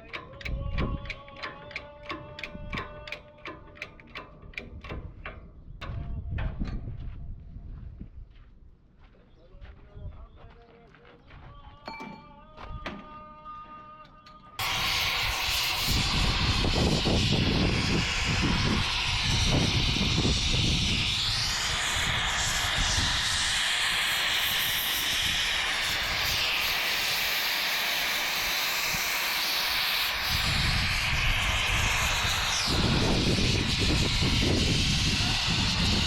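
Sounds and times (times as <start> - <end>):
power tool whining: 14.6 - 36.0.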